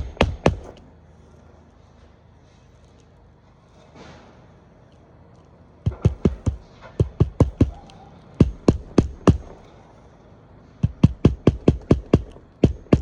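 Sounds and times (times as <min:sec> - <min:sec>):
hammer striking roofing nails: 0:00.0 - 0:00.8, 0:05.8 - 0:09.8, 0:10.8 - 0:13.0.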